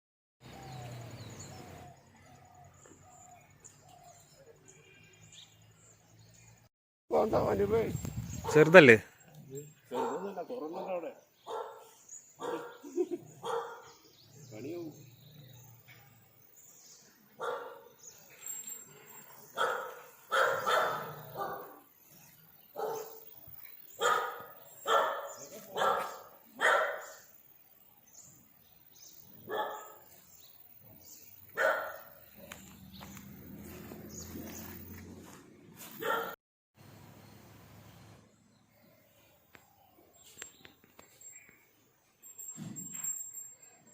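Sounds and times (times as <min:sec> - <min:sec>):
small birds chirping: 0:00.4 - 0:35.1, 0:37.2 - 0:42.8
dog barking: 0:09.9 - 0:10.4, 0:11.4 - 0:13.9, 0:17.4 - 0:17.9, 0:19.6 - 0:21.8, 0:22.8 - 0:23.3, 0:24.0 - 0:27.2, 0:29.4 - 0:30.1, 0:31.6 - 0:32.6, 0:36.0 - 0:36.4.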